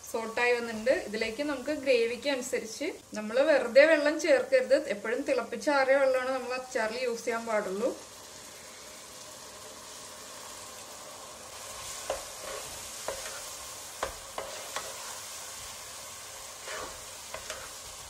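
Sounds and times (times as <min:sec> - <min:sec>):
food sizzling in hot oil: 0:00.0 - 0:18.0
spatula tapping and scraping pot: 0:11.9 - 0:15.3, 0:16.6 - 0:18.0.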